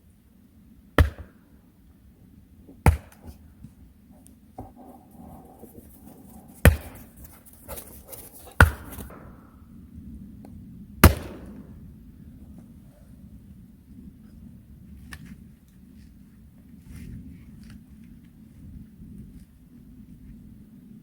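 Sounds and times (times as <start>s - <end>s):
tool striking wood: 6.6s - 7.1s, 8.6s - 9.3s.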